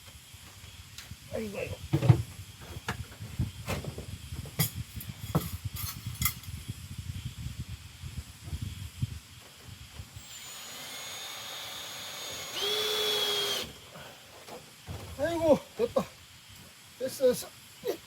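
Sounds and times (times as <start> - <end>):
power drill whining: 10.2 - 13.9.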